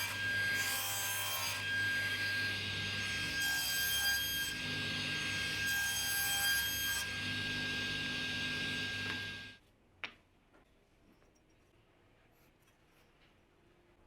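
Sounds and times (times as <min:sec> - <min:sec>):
power tool running against wood: 0:04.5 - 0:05.7, 0:07.0 - 0:09.6.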